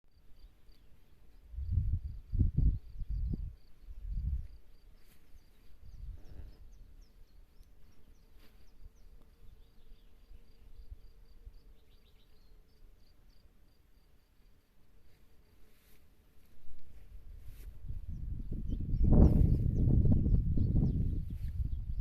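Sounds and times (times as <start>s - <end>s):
insect chirping steadily: 0.1s - 22.0s.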